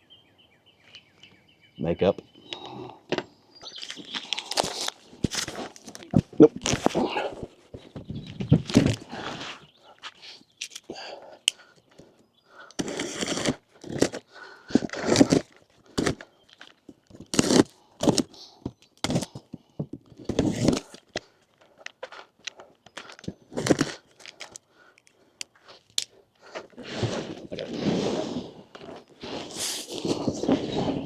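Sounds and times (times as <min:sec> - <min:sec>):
packaging and parts handled: 0:02.5 - 0:12.0, 0:12.7 - 0:27.8
packaging rustling: 0:03.6 - 0:12.0, 0:12.7 - 0:27.8.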